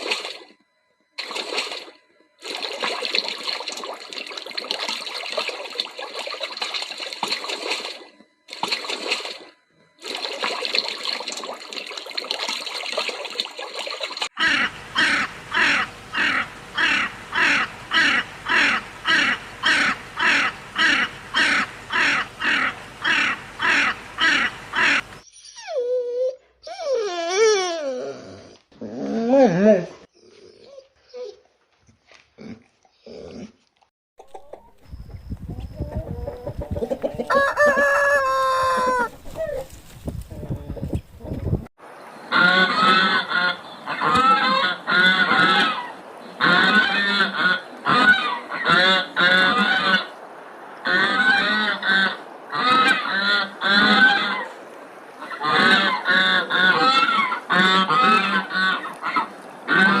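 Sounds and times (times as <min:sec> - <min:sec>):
geese honking: 0:14.4 - 0:25.2, 0:36.9 - 0:39.8, 0:42.3 - 0:50.2, 0:50.8 - 0:54.6, 0:55.2 - 1:00.0
rooster clucking and crowing: 0:14.4 - 0:25.2, 0:35.6 - 0:39.7.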